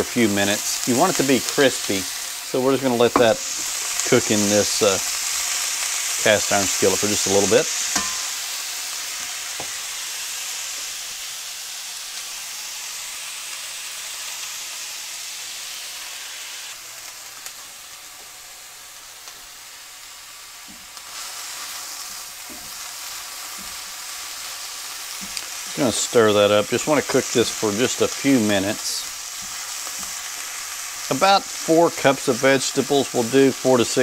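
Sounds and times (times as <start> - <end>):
vegetables sizzling in oil: 0.0 - 34.0
spatula scraping a pan: 7.7 - 9.8.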